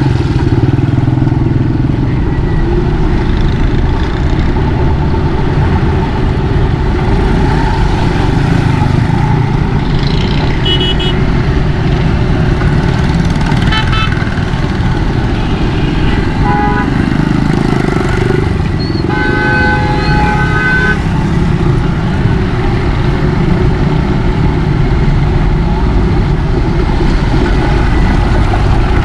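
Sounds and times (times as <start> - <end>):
vehicle horns honking: 10.5 - 11.3, 13.6 - 14.4, 15.3 - 21.1.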